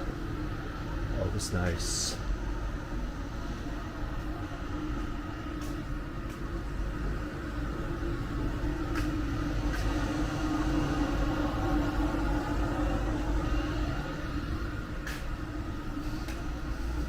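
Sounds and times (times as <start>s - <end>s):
drone propellers humming: 0.0s - 17.0s.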